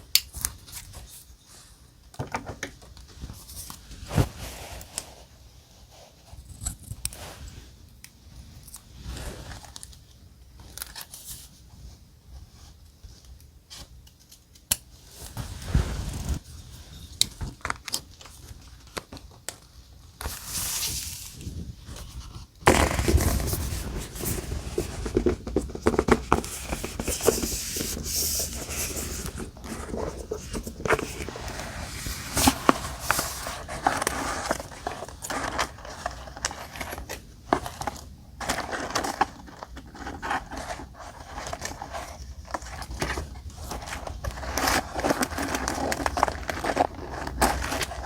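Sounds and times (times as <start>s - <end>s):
paper rustling and scraping: 3.2s - 6.4s, 15.1s - 19.0s, 20.2s - 48.0s.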